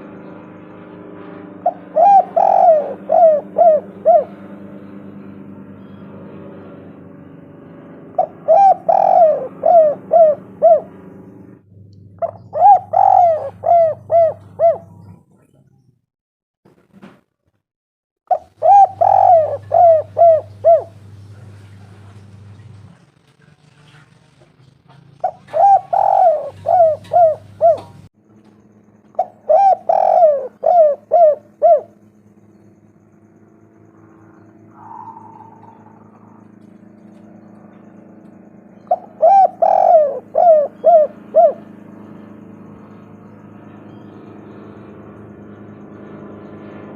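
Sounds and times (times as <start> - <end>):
dove cooing: 1.6 - 5.0, 8.1 - 11.2, 12.2 - 15.3, 18.3 - 22.9, 25.2 - 28.1, 29.1 - 32.1, 34.0 - 38.0, 38.7 - 44.2
faint steady hum: 25.2 - 46.4.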